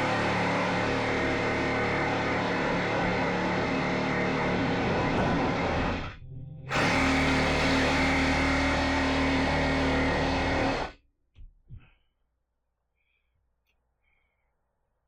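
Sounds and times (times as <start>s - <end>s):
reciprocating saw cutting metal: 0.0s - 10.9s.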